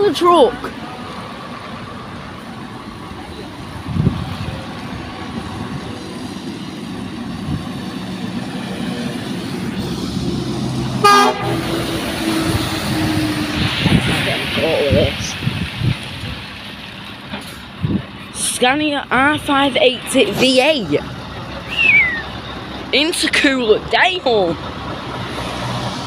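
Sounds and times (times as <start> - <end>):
lorry engine rumble: 0.0 - 26.0
air horn blast: 11.0 - 11.9.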